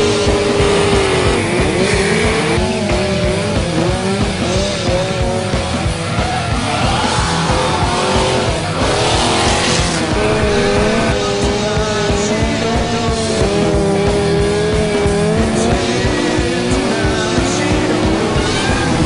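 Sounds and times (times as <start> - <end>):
engines revving: 0.0 - 19.0
music with a steady beat: 0.0 - 19.0
tire squeal: 5.7 - 11.4, 17.8 - 19.0.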